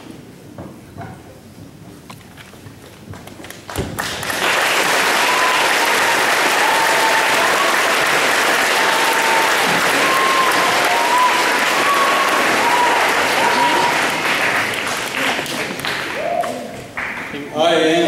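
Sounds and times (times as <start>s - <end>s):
audience applauding: 3.4s - 17.5s.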